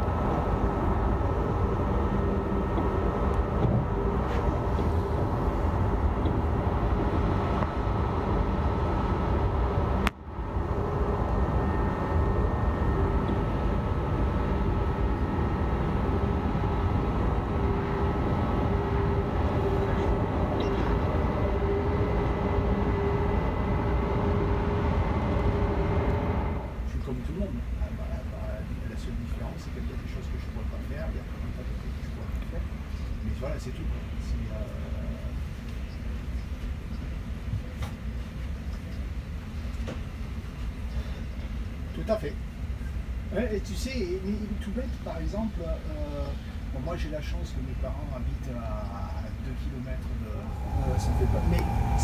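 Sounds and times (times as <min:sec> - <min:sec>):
constant train equipment hum: 0:00.0 - 0:52.0
wheels rumbling on rail: 0:50.0 - 0:52.0.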